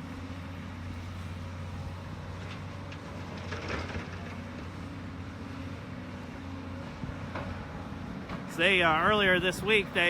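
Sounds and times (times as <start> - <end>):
diesel engine running: 0.0 - 10.0
rattle of broken asphalt: 2.4 - 4.8.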